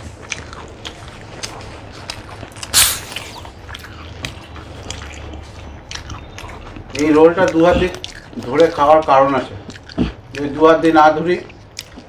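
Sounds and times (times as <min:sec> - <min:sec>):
people chewing: 0:00.0 - 0:12.0
wet mouth clicks: 0:00.3 - 0:10.6, 0:11.4 - 0:12.0
loud noisy burst: 0:02.7 - 0:03.2.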